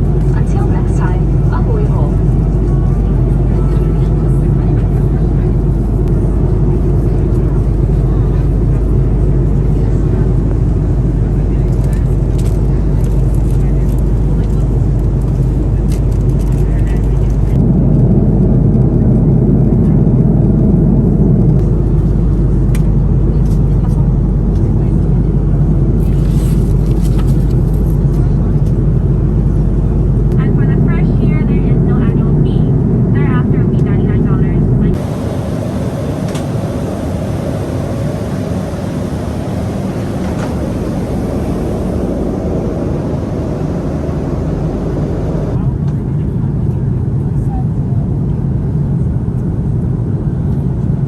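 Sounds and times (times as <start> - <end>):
aircraft cabin engine rumble: 0.0 - 51.0.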